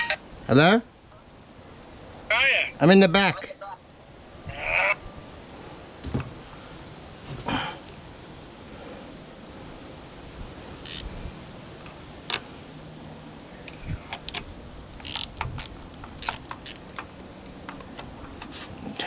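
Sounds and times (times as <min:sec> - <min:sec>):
faint hiss: 0:00.0 - 0:19.0
small metal tools clicking: 0:10.9 - 0:11.1, 0:15.0 - 0:17.1.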